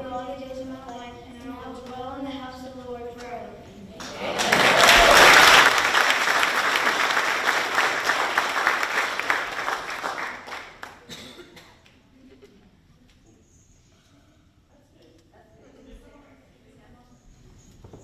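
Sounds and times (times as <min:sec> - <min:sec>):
crowd applauding: 0:04.0 - 0:11.1.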